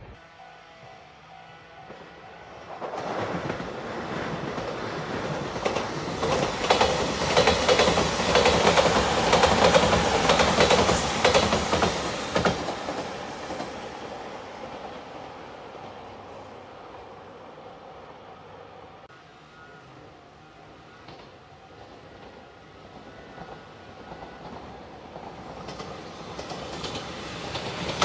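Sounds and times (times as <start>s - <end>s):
train wheels clattering over joints: 4.4s - 13.7s.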